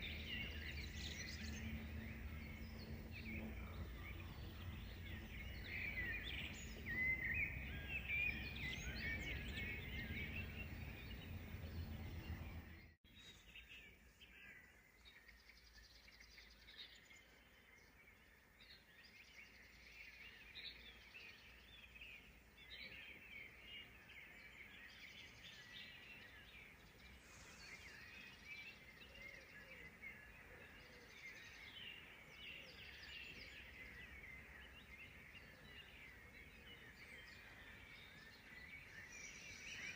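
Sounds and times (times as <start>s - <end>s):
low steady rumble: 0.0s - 8.6s, 9.2s - 12.9s
songbirds chirping and trilling: 0.0s - 39.9s.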